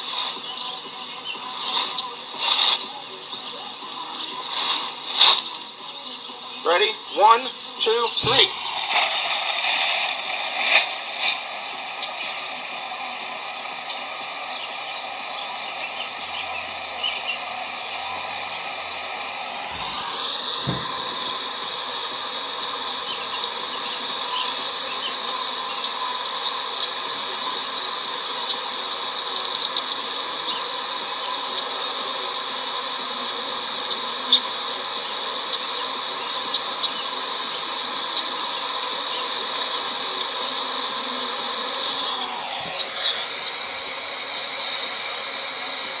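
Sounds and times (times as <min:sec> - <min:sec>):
bees buzzing: 0:00.3 - 0:10.2, 0:13.1 - 0:23.2, 0:41.7 - 0:46.0.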